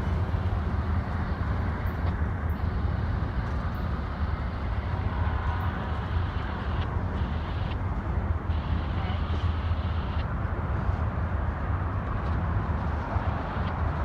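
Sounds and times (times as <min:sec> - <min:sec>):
passenger train rumbling past: 0:00.0 - 0:06.7.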